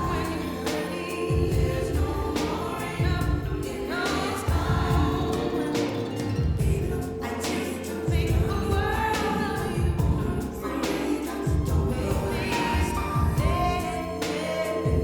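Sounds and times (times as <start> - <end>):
song with vocals and drums: 0.0 - 15.0.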